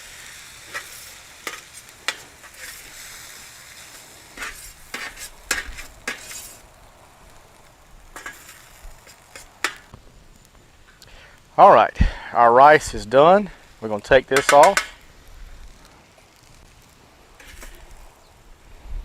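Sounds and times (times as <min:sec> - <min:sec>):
rice sizzling on griddle: 0:00.0 - 0:19.0
utensil scraping pan: 0:00.7 - 0:03.2, 0:04.3 - 0:06.6, 0:08.2 - 0:09.9, 0:17.4 - 0:17.9.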